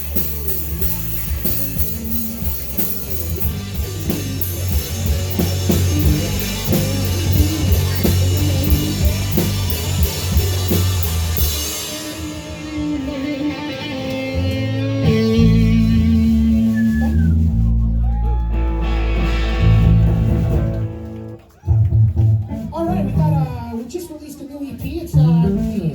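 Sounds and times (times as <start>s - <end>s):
drums with cymbal beat: 0.0s - 14.5s
electric guitar: 0.0s - 23.6s
bass guitar: 0.0s - 23.8s, 24.8s - 25.9s.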